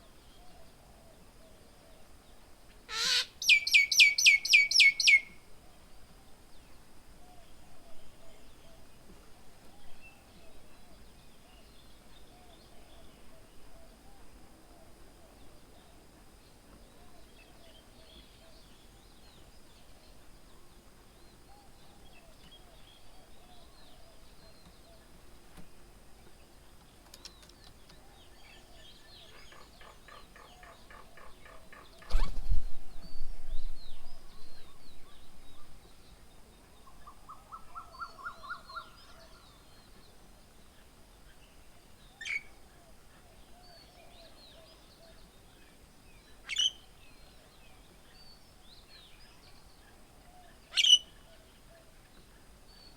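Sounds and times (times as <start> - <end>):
birds chirping and calling: 2.9 - 5.3, 50.7 - 51.1.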